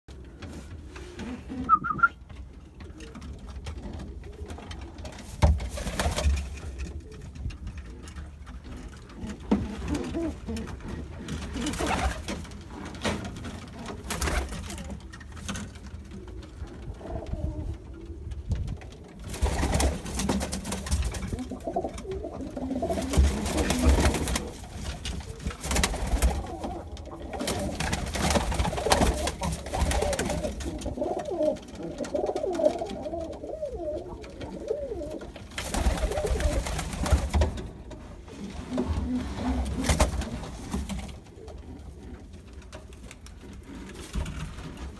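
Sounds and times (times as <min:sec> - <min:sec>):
pigeons cooing: 0:09.0 - 0:12.8, 0:16.1 - 0:20.0, 0:21.2 - 0:37.3.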